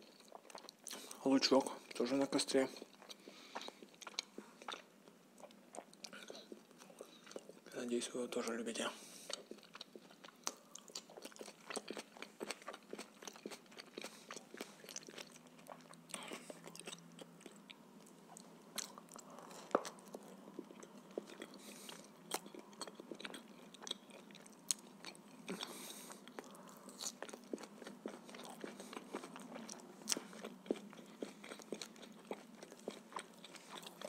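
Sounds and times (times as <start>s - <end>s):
man chewing food: 0.0s - 7.7s, 8.4s - 34.0s.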